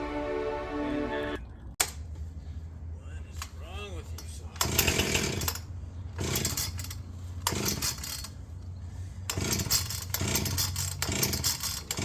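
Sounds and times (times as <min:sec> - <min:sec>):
chainsaw idling and revving: 0:04.6 - 0:05.6, 0:06.2 - 0:08.3, 0:09.2 - 0:12.0.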